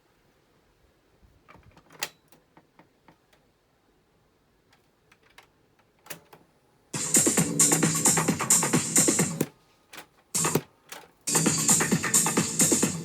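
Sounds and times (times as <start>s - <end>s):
loud music with a beat: 7.0s - 9.5s, 10.4s - 10.6s, 11.3s - 13.0s
button and switch clicks: 10.4s - 10.7s.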